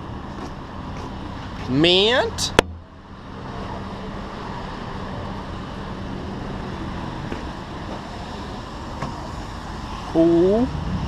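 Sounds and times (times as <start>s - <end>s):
vehicle engine and road noise: 0.0s - 11.0s
low hum: 2.5s - 3.3s.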